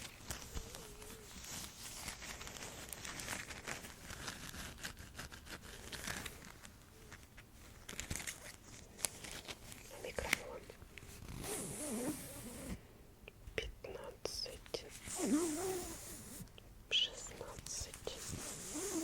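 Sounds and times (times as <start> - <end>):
crinkling and rustling: 0.0 - 11.6.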